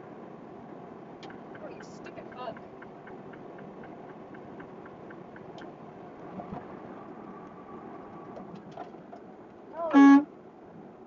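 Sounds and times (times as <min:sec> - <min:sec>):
truck engine and road noise: 0:00.0 - 0:11.0
faint light ticks: 0:01.2 - 0:06.3.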